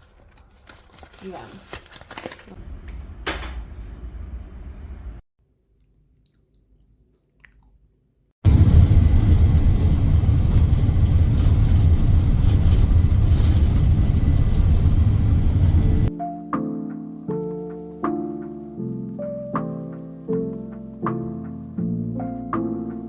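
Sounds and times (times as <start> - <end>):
loud low rumble: 2.6 - 5.2, 8.4 - 16.1.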